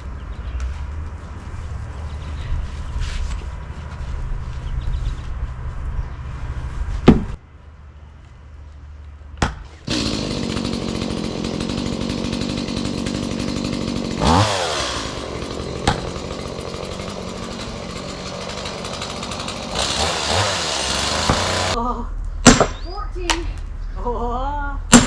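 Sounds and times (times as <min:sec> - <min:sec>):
gas chainsaw running: 0:09.9 - 0:21.8.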